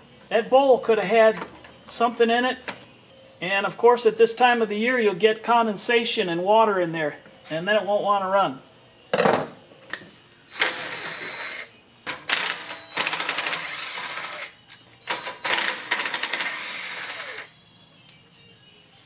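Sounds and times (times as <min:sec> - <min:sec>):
rapid mechanical clicking of tool: 0:15.1 - 0:17.5.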